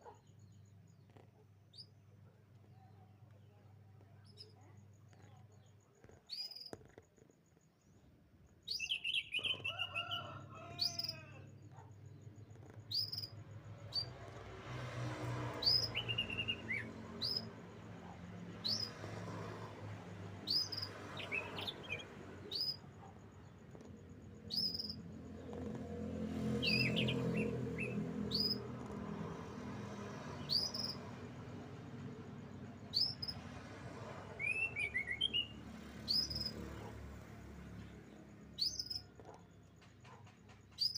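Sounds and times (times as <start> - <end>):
canary chirping: 11.8 - 14.4, 15.6 - 19.2, 20.2 - 25.8, 26.4 - 33.4, 34.3 - 39.4, 40.0 - 40.9.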